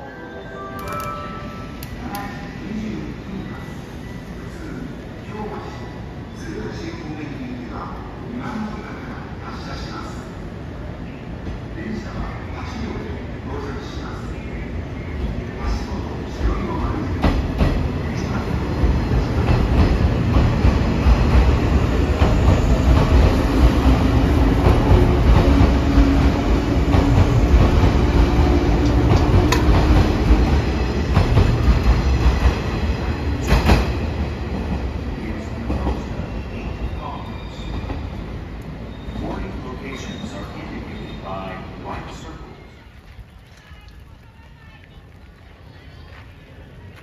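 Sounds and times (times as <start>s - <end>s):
train rumbling past: 7.8s - 42.7s.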